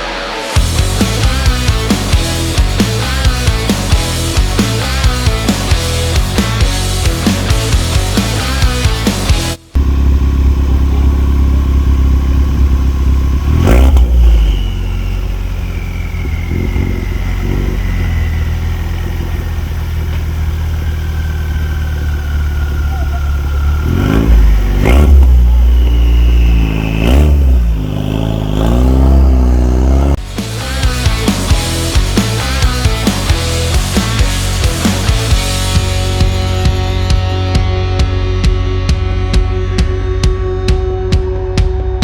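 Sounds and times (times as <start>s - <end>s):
car engine idling and revving: 0.0s - 42.0s.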